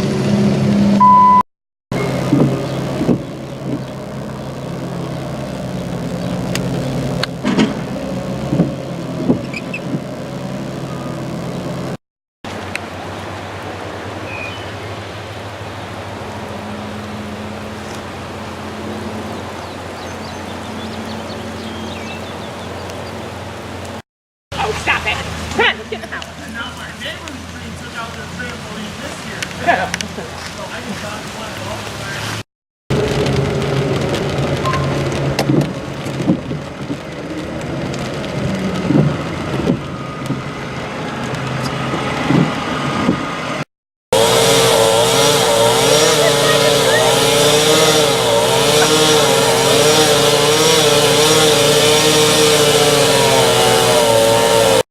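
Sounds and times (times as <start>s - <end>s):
rain falling: 1.9s - 42.9s, 45.2s - 54.8s
faint bird chirps: 14.3s - 14.8s
chainsaw running: 44.1s - 54.8s.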